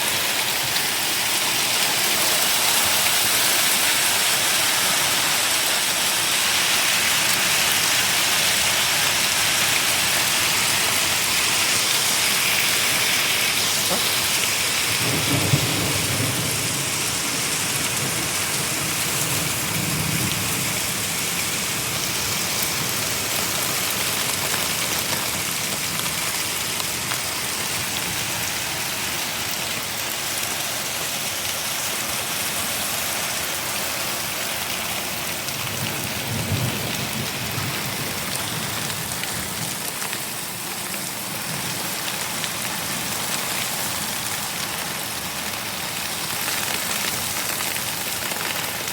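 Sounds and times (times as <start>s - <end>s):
heavy rain pouring: 0.0s - 48.9s
low thunder rumbles: 14.1s - 21.2s.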